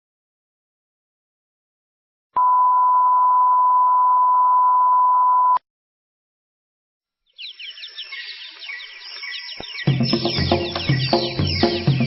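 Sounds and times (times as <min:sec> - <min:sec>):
pure test tone beep: 0:02.4 - 0:05.6
faint bird chirping: 0:07.2 - 0:12.0.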